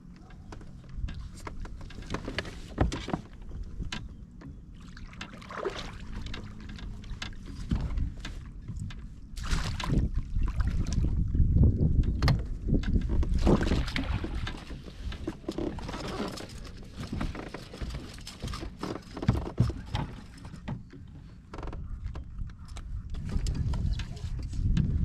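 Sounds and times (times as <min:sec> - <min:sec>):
wind noise on microphone: 0:06.0 - 0:20.9, 0:21.6 - 0:25.0.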